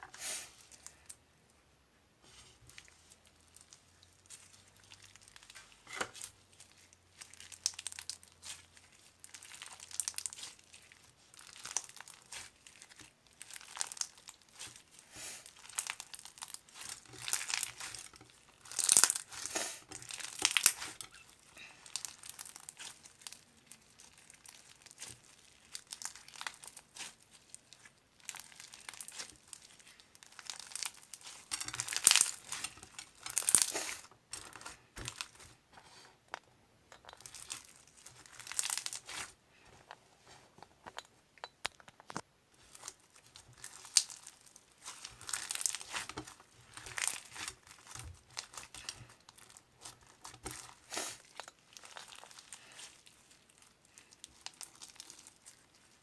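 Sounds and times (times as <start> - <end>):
wrapping crinkling and rustling: 2.3 - 36.1, 37.0 - 41.1, 41.8 - 56.0.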